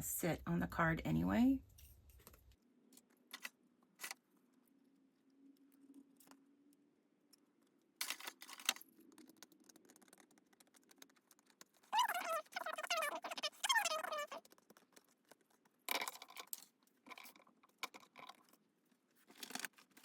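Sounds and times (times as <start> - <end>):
craft supplies clattering: 8.0 - 9.6, 19.2 - 20.0.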